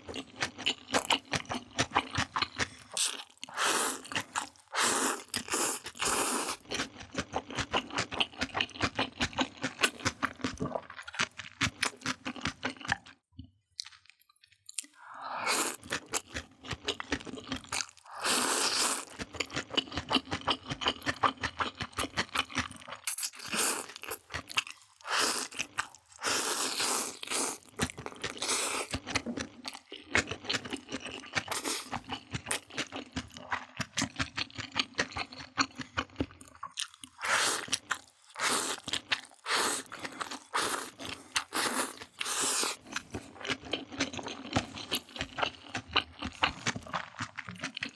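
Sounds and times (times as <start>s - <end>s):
crunchy bites and wet chewing: 0.0s - 13.2s, 15.6s - 47.9s.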